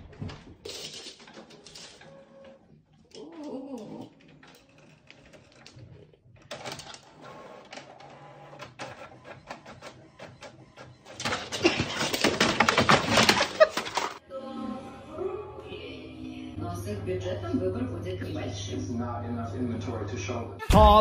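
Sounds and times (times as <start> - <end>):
printer clicking and whirring: 4.1 - 14.2.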